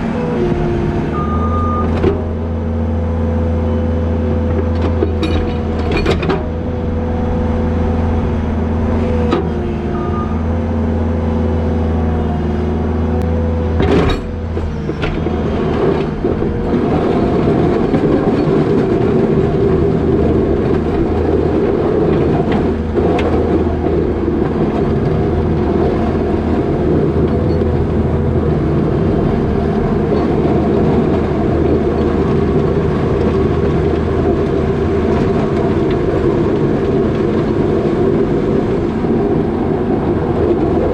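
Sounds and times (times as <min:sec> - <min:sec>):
diesel engine running: 0:00.0 - 0:40.9
plow pushing wet snow: 0:00.0 - 0:40.9
sharp clanks and knocks: 0:04.5 - 0:06.7, 0:13.8 - 0:19.0.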